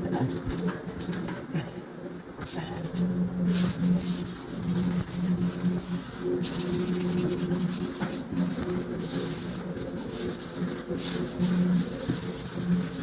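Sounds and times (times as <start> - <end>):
electric sander on drywall: 3.5 - 13.0.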